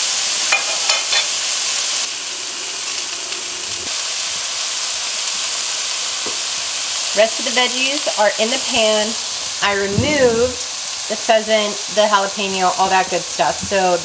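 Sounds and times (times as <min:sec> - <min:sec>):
stir-fry sizzling in a pan: 0:00.0 - 0:14.0
oil crackles: 0:11.8 - 0:14.0.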